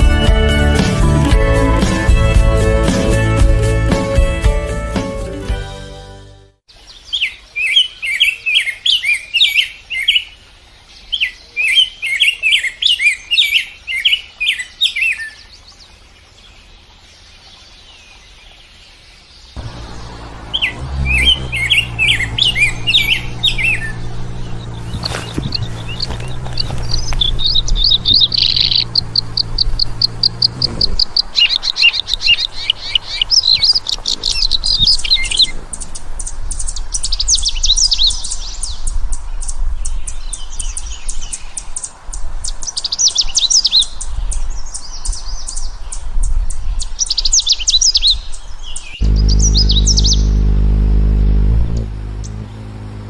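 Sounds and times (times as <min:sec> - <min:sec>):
lovebird chirping: 0:19.6 - 0:41.0, 0:48.8 - 0:50.5.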